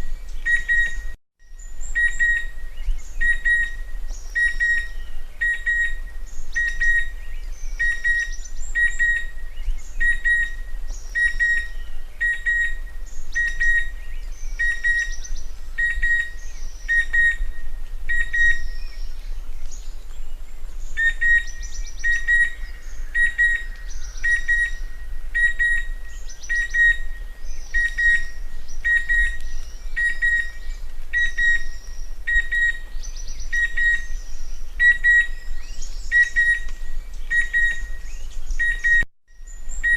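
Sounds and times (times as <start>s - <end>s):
high bird chirps: 21.0s - 39.9s.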